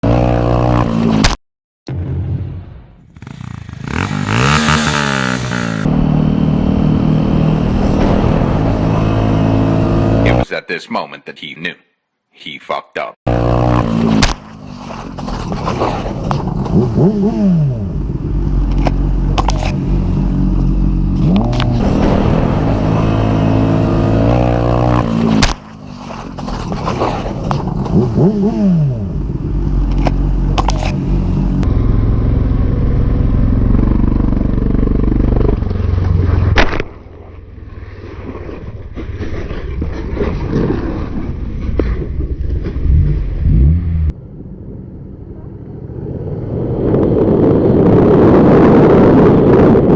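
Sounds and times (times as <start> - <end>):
motorcycle engine revving: 0.0 - 1.3, 3.0 - 10.4, 13.3 - 36.6, 42.6 - 49.9.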